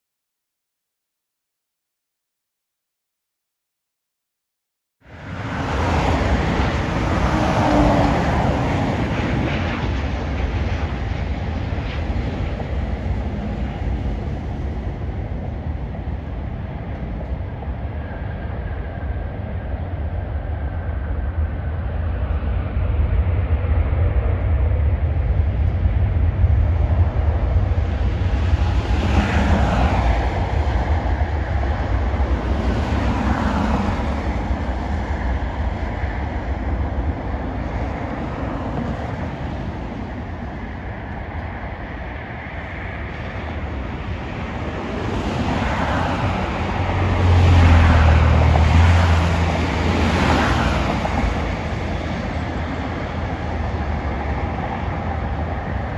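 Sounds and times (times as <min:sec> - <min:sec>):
jet airliner engine noise: 0:05.0 - 0:55.9
deep rumble: 0:08.0 - 0:55.9.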